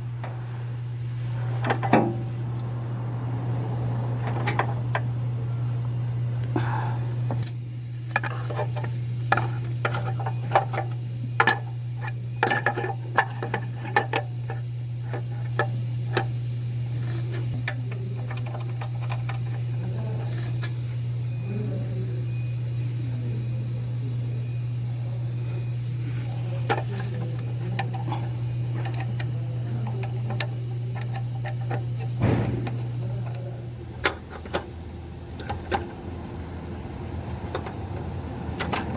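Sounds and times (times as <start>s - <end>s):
faint voices: 0.0s - 7.4s, 17.7s - 31.2s, 32.2s - 35.4s
steady low hum: 0.0s - 38.9s.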